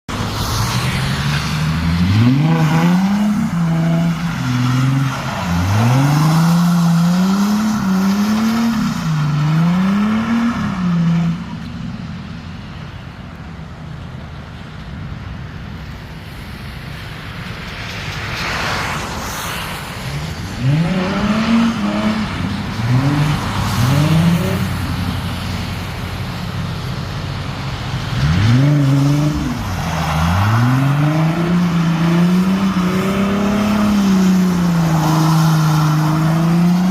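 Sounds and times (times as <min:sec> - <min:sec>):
car engine revving: 0:20.6 - 0:25.1.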